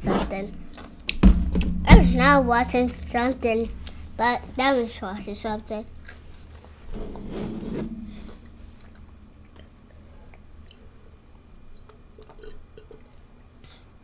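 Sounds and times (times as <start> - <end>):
chewing food: 9.4 - 13.5
mouth clicks and smacks: 11.8 - 13.2.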